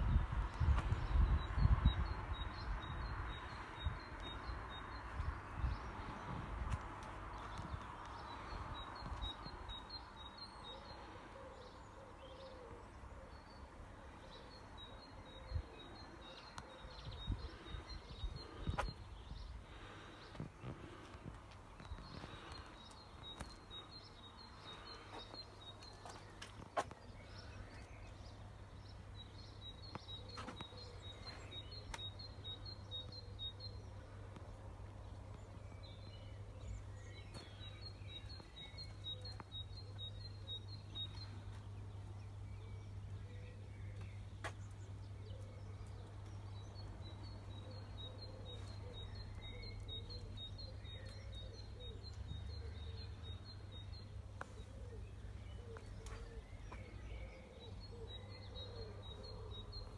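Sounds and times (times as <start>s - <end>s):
small bird singing: 21.8s - 59.9s.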